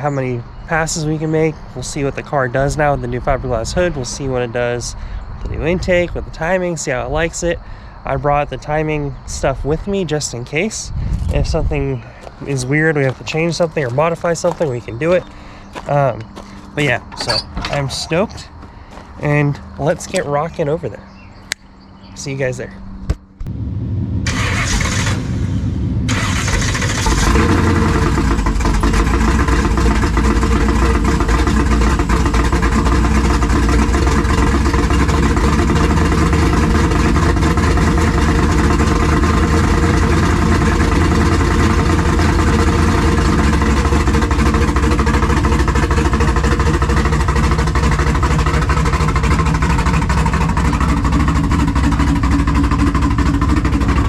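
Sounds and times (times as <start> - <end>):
car engine cranking and running: 11.5 - 21.3, 23.4 - 54.0.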